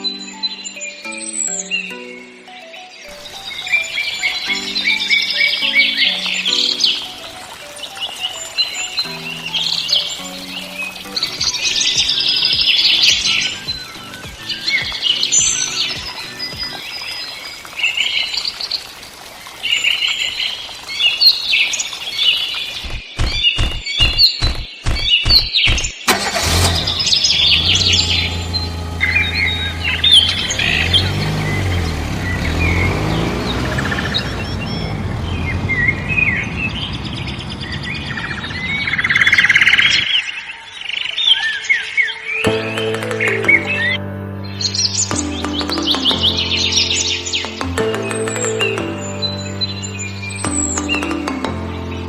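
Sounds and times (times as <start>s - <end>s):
birds chirping and twittering: 0.0s - 52.0s
regular sharp thumps: 22.8s - 26.1s, 50.5s - 51.8s.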